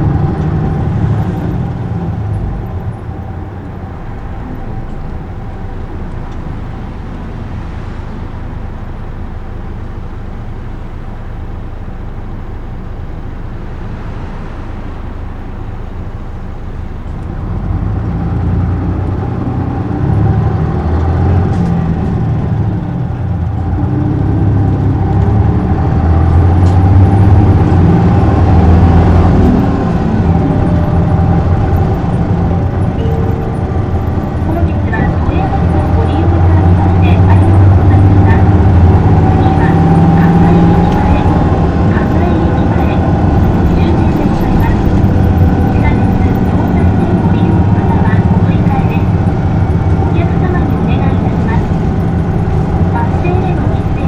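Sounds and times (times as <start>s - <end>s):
bus engine running: 0.0s - 54.0s
faint whine: 0.0s - 54.0s.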